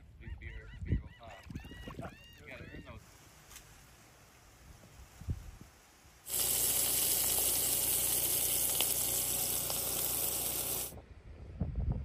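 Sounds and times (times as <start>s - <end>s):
burger patties sizzling in skillet: 6.3s - 11.0s.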